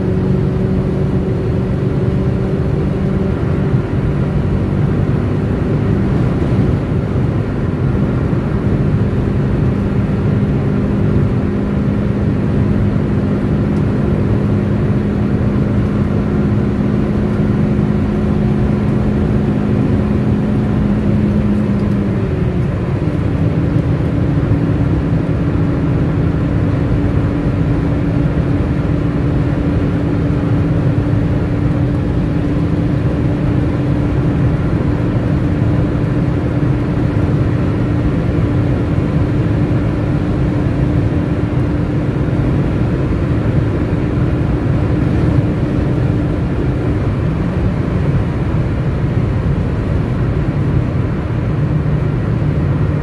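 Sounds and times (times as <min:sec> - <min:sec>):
car engine running at high speed: 0:00.0 - 0:53.0
road noise: 0:00.0 - 0:53.0.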